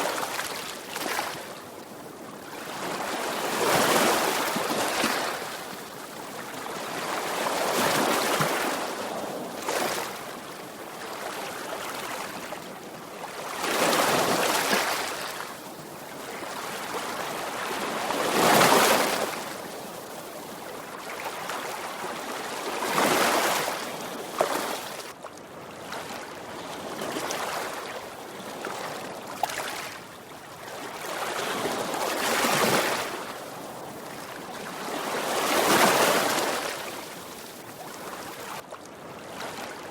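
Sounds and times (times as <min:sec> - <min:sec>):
sea waves breaking on shore: 0:28.6 - 0:38.6.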